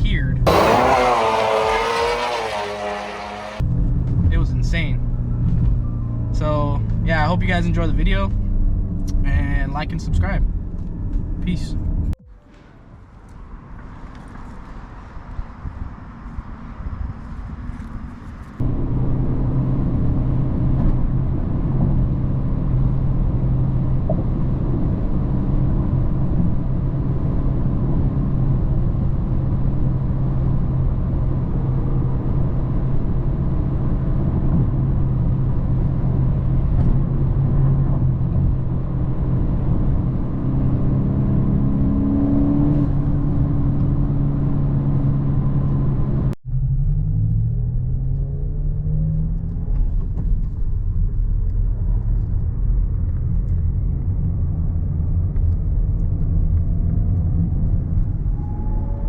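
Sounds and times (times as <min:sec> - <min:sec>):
car engine running: 0:00.5 - 0:03.7.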